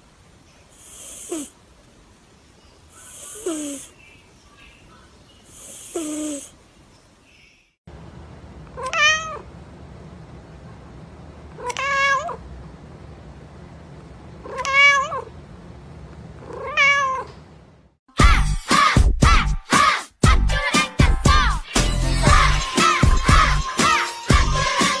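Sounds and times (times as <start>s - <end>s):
cat meowing: 8.8s - 9.5s, 11.6s - 12.4s, 14.4s - 15.3s, 16.4s - 17.4s.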